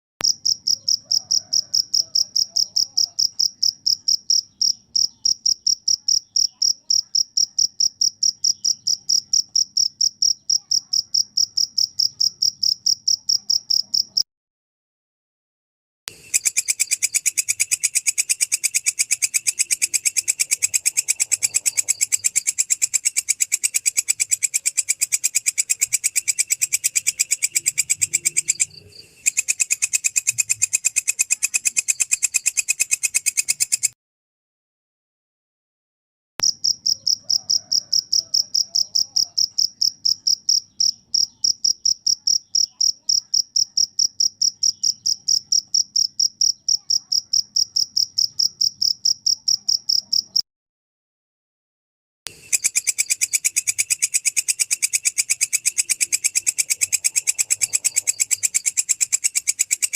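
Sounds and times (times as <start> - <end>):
cricket chirping: 0.2 - 14.2, 16.1 - 34.0, 36.4 - 50.4, 52.3 - 59.9
katydid buzzy pulsed call: 52.3 - 59.9.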